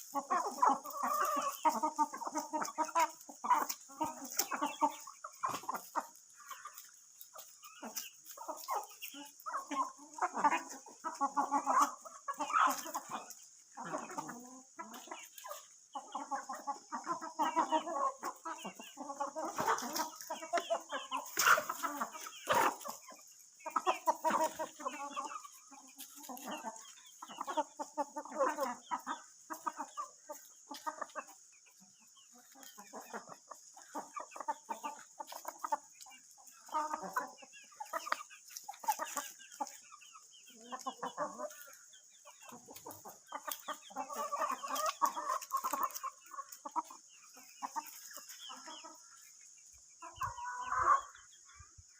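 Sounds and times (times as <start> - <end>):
chickens clucking: 0.0 - 51.9.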